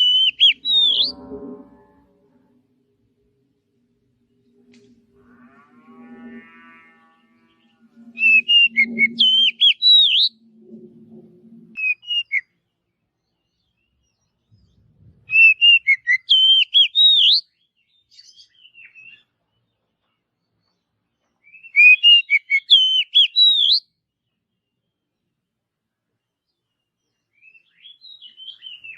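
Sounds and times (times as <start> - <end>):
bird singing whistled notes: 0.0 - 1.5, 7.4 - 10.5, 11.8 - 12.6, 13.2 - 19.3, 21.4 - 23.9, 26.5 - 28.9.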